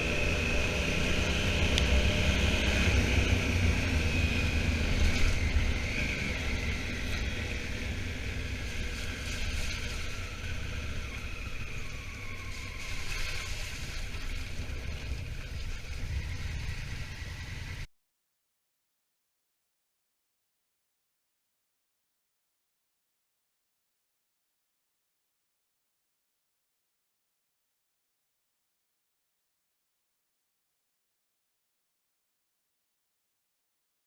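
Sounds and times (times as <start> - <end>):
motorcycle engine rumbling: 0.0 - 17.9
wind noise: 0.0 - 17.9.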